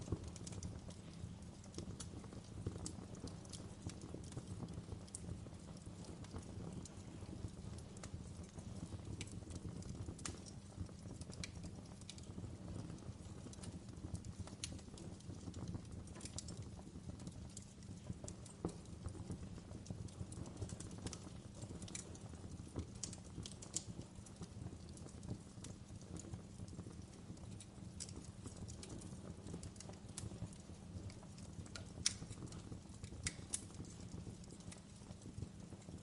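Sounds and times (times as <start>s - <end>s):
fire burning in fireplace: 0.0s - 36.0s
fire crackling and popping: 0.0s - 36.0s.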